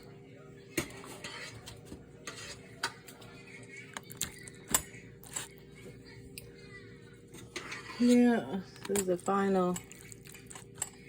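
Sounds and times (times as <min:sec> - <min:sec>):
utensil clinking on pot and plate: 0:00.8 - 0:03.3.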